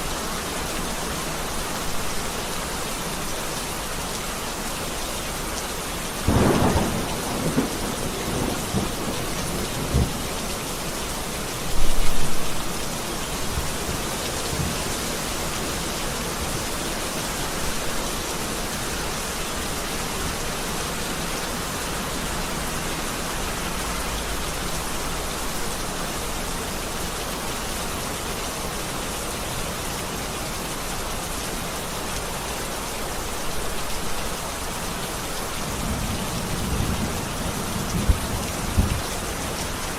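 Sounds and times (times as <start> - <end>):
heavy rain falling: 0.0 - 39.9
thunder cracking and rumbling: 6.3 - 10.2.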